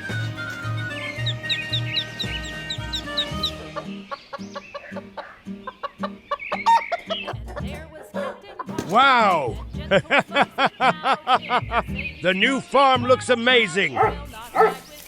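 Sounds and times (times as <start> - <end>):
bird chirps: 0.0 - 7.4, 11.3 - 12.4
chickens clucking: 0.0 - 12.2, 14.0 - 15.0
background music: 0.0 - 15.0.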